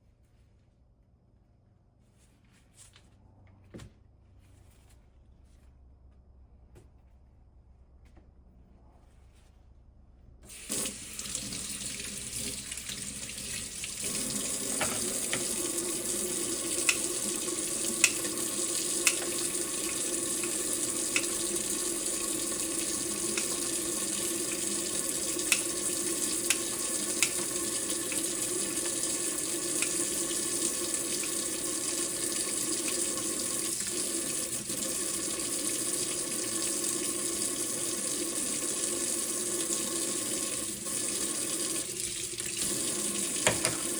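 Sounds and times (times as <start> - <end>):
tap water running into sink: 10.5 - 43.9.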